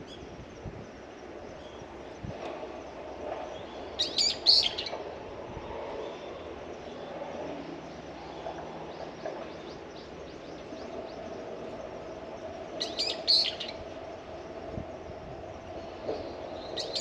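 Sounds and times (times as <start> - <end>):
birds chirping: 3.3 - 5.0, 6.0 - 13.9, 15.8 - 17.0
loud high bird calls: 3.5 - 5.0, 12.8 - 13.9, 16.2 - 17.0.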